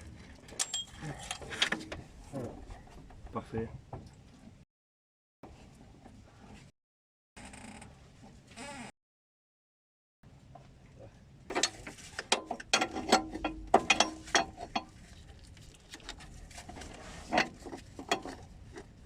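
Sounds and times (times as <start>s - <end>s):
hand tools clicking and clanking: 0.5s - 2.0s, 11.5s - 15.0s, 16.8s - 19.0s.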